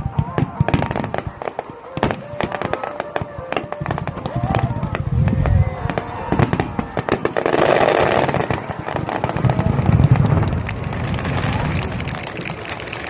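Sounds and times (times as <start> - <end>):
firework cracks and crackles: 0.0 - 13.0
hissing firework shower: 0.5 - 13.0
low firework booms: 2.0 - 12.3.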